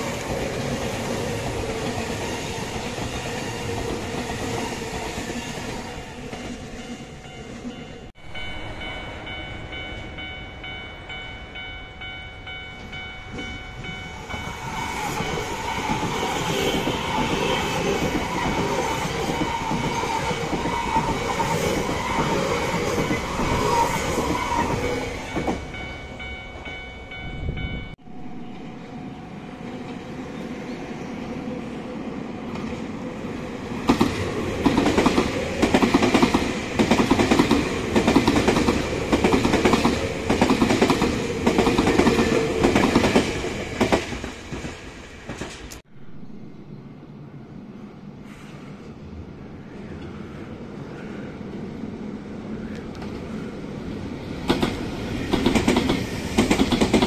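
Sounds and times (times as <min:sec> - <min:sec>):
electric train passing: 0:00.0 - 0:57.0
train approaching: 0:00.0 - 0:57.0
steady high tones: 0:06.0 - 0:20.5, 0:22.7 - 0:29.8.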